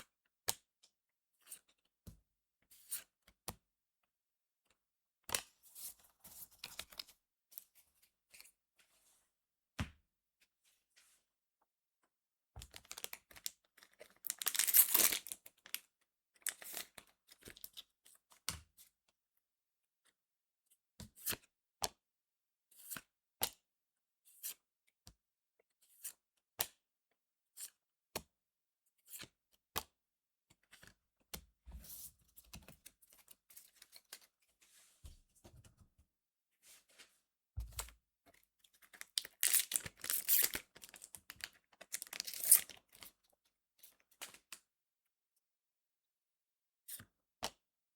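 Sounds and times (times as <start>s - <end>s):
foil wrappers tearing open: 14.3s - 15.4s, 39.1s - 41.1s, 41.9s - 42.7s.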